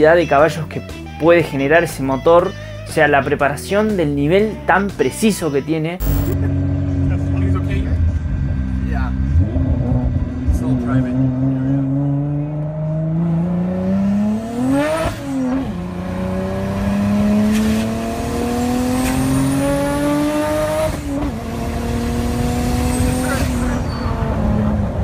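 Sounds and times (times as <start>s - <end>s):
car engine accelerating hard: 6.0s - 25.0s.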